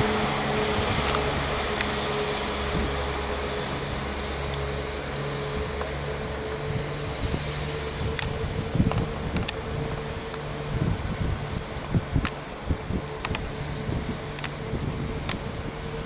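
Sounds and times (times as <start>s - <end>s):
train engine humming: 0.0s - 16.0s
faint clicks: 14.4s - 14.6s.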